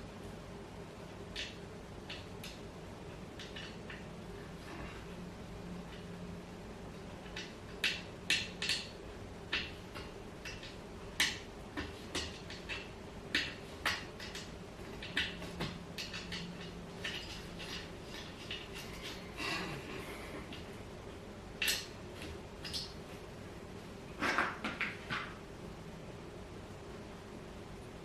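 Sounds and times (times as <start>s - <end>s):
metal hardware clicking and clinking: 10.4s - 19.4s.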